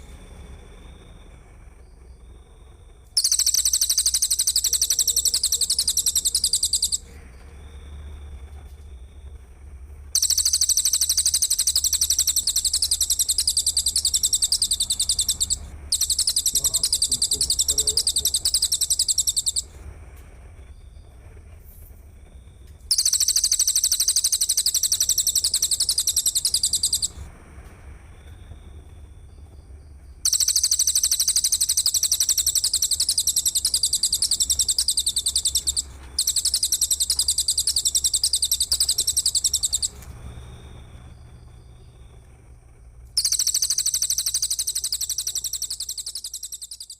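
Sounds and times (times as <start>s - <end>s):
low hum: 0.0s - 46.8s
insect buzzing trills: 3.2s - 7.1s, 10.1s - 19.7s, 22.9s - 27.3s, 30.2s - 40.8s, 43.2s - 46.9s.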